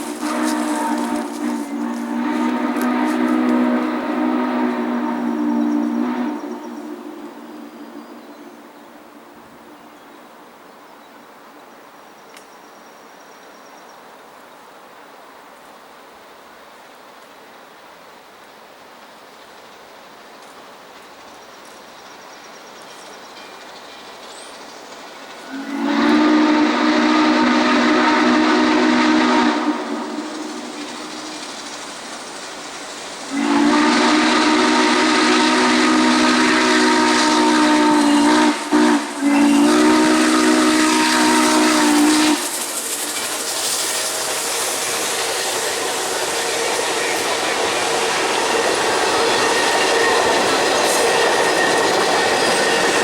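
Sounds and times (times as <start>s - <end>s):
steam locomotive whistle: 0.0s - 8.8s, 25.4s - 53.0s
train rumble: 0.0s - 13.2s, 14.0s - 53.0s.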